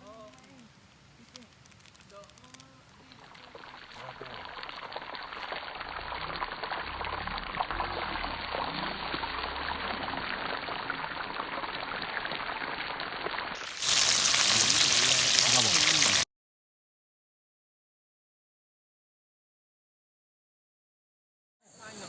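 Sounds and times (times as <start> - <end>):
waterfall rushing: 13.6 - 16.2.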